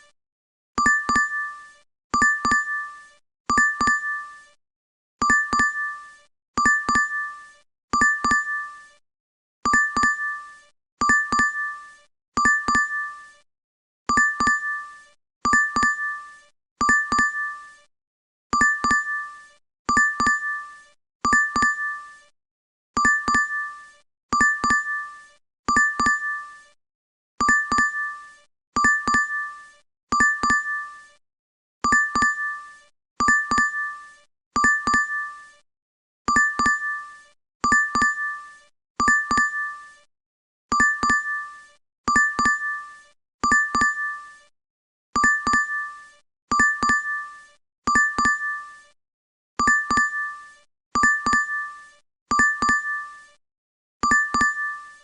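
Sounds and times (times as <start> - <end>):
two-tone notification chime: 12.4 - 13.0, 33.2 - 33.8, 36.3 - 36.8, 40.8 - 41.3, 42.1 - 42.6, 45.2 - 45.8, 46.5 - 47.1, 49.6 - 50.2, 51.0 - 51.6, 52.3 - 53.0, 54.0 - 54.8.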